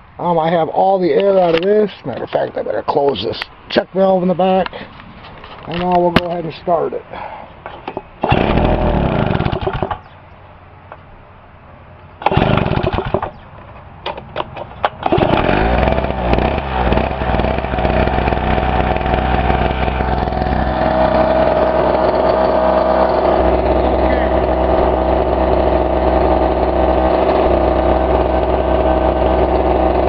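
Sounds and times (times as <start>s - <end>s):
generator engine starting and running: 7.2s - 10.2s, 12.2s - 30.0s.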